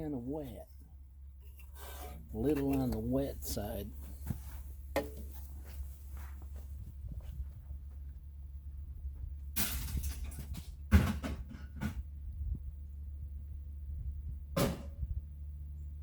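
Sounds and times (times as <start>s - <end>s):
steady low hum: 0.0s - 16.0s
metal clatter: 9.6s - 12.0s
sharp metallic knock: 14.6s - 15.0s.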